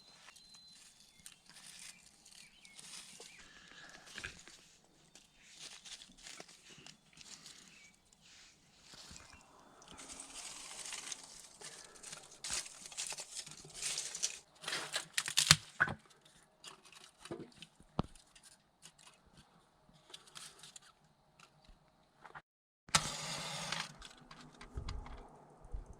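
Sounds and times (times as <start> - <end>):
paper crumpling and tearing: 0.1 - 15.6
kindling cracking: 0.2 - 15.8.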